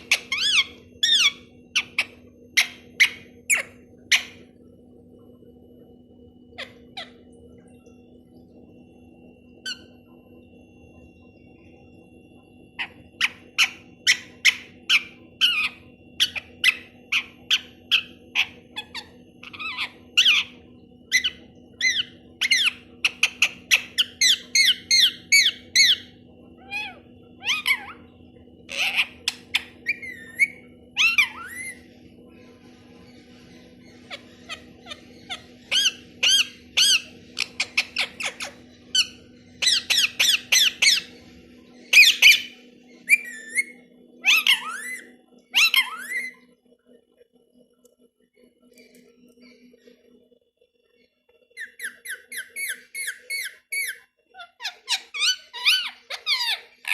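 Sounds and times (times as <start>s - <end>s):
parrot squawking: 0.0s - 4.4s, 6.5s - 7.2s, 12.8s - 28.0s, 28.7s - 31.9s, 33.4s - 41.2s, 41.9s - 46.4s, 51.6s - 56.9s
faint steady hum: 0.0s - 56.9s.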